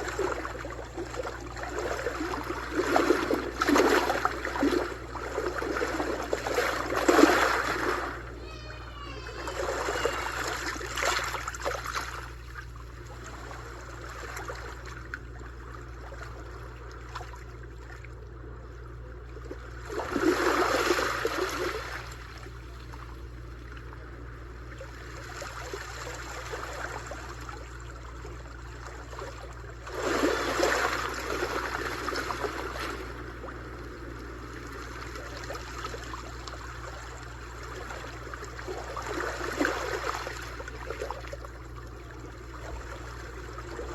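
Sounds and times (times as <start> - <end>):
sea waves crashing on beach: 0.0 - 12.0, 29.8 - 41.1.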